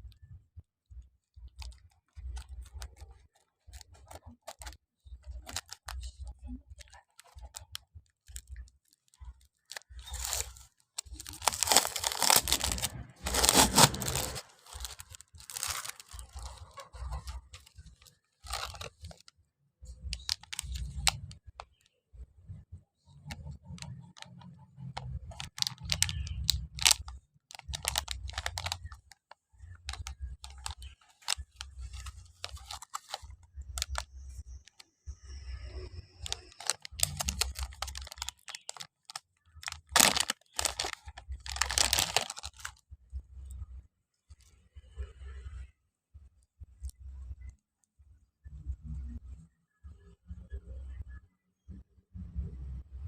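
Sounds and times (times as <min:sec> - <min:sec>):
plastic packaging tearing and crinkling: 0:01.6 - 0:06.2, 0:06.8 - 0:19.3, 0:20.1 - 0:21.4, 0:25.0 - 0:34.8, 0:36.2 - 0:42.8.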